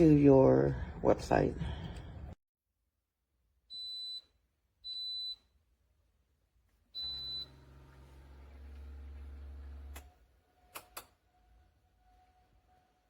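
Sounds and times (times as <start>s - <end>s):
coffee maker beeps: 3.7s - 5.5s, 6.9s - 9.9s
machine humming: 7.1s - 10.1s.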